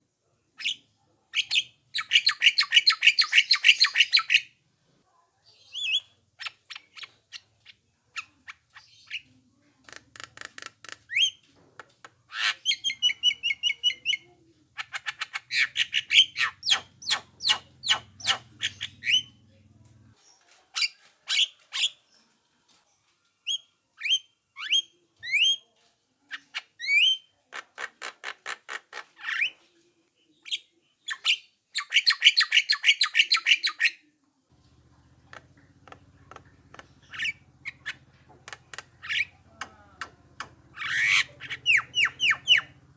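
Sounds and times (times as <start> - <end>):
myna calling: 34.7 - 42.9.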